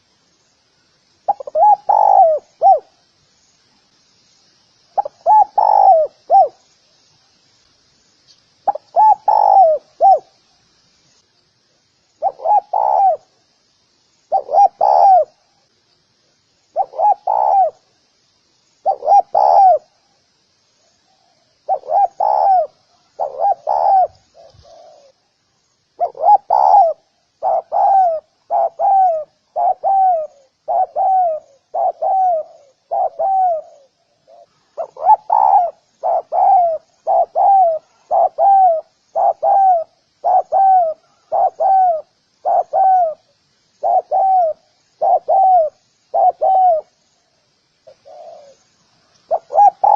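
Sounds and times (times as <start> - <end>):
faint high chirping: 0.0 - 49.9
dove cooing: 1.3 - 3.0, 5.0 - 6.6, 8.6 - 10.3, 12.2 - 13.4, 14.3 - 15.4, 16.7 - 17.9, 18.8 - 19.9, 21.1 - 25.2, 26.0 - 47.0, 47.8 - 48.7, 49.3 - 49.9.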